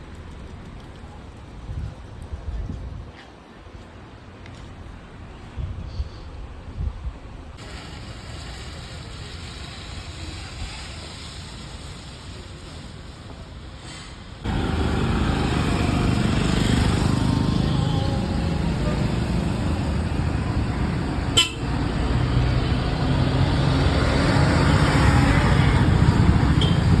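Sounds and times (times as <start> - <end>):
bus engine running loudly: 14.4 - 27.0
horn toots: 21.0 - 22.3, 25.5 - 27.0.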